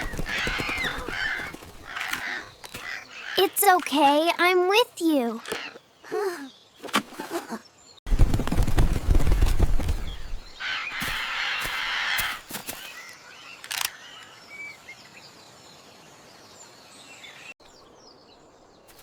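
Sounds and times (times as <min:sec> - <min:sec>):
parrot wings flapping: 0:00.0 - 0:03.0, 0:08.1 - 0:13.0.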